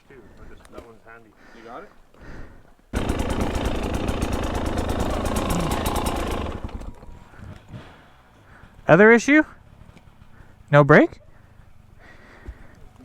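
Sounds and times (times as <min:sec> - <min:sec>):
dirt bike engine running: 0:03.0 - 0:08.1.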